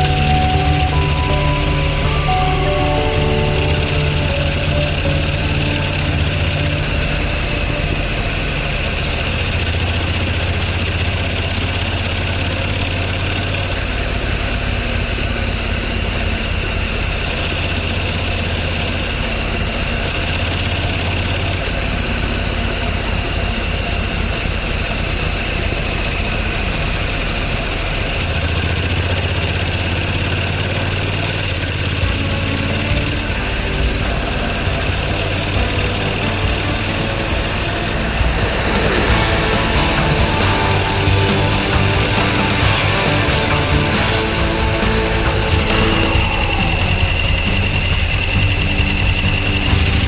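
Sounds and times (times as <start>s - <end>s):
engine running: 0.0s - 19.2s, 28.7s - 50.0s.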